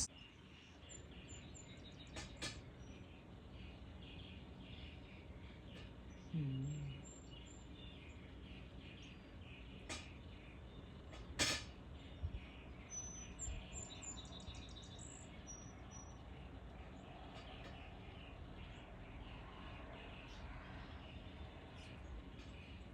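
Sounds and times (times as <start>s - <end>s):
small birds chirping: 0.0s - 22.9s
brief low hum: 6.3s - 7.0s.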